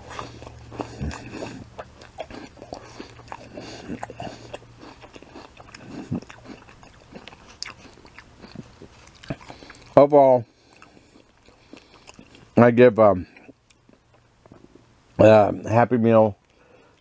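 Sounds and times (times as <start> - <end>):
person chewing crisp apple: 0.0 - 12.6.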